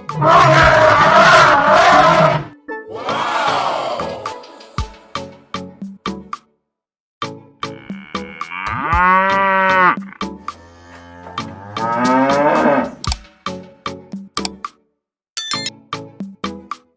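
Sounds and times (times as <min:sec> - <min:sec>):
cow mooing: 0:00.1 - 0:02.5, 0:07.7 - 0:13.0.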